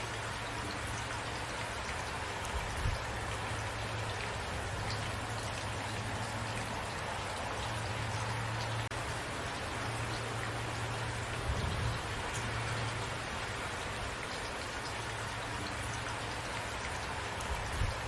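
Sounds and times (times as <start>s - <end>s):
steady rain hiss: 0.0s - 18.0s.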